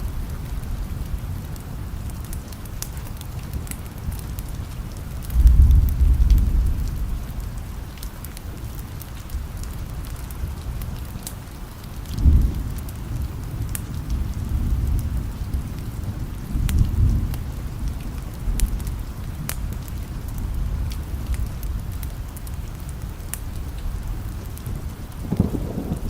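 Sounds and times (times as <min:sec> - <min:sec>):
steady rain: 0:00.0 - 0:26.0
low thunder rumbles: 0:03.5 - 0:07.9, 0:12.0 - 0:26.0.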